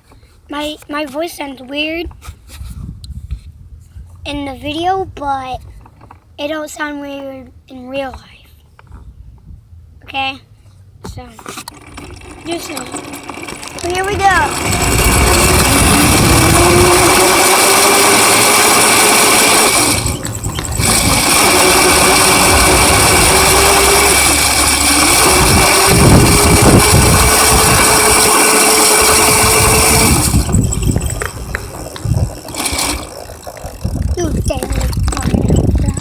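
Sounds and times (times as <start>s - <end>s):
dirt bike motor accelerating: 11.5s - 36.0s.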